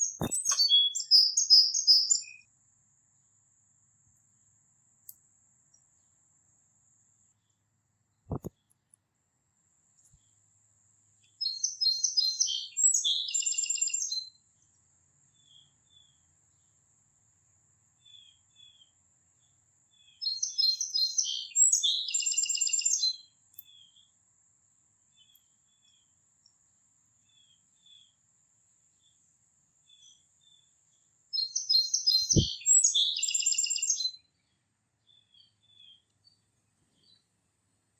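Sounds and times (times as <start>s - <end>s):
songbird trilling: 0.0s - 2.4s, 11.4s - 14.3s, 20.2s - 23.2s, 31.4s - 34.2s
faint bird chirps: 0.0s - 2.5s, 11.2s - 16.8s, 17.9s - 24.2s, 25.1s - 28.2s, 29.8s - 37.4s.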